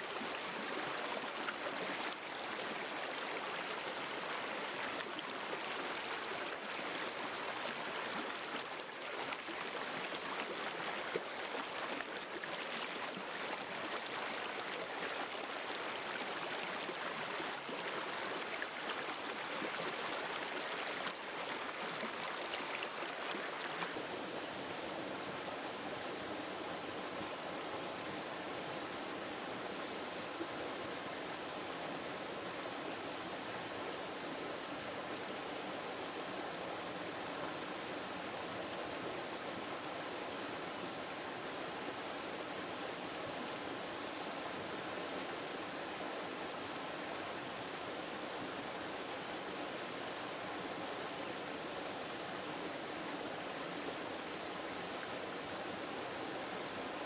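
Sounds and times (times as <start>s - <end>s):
river water rushing over rocks: 0.0s - 24.5s
water splashes and trickles: 0.0s - 24.6s.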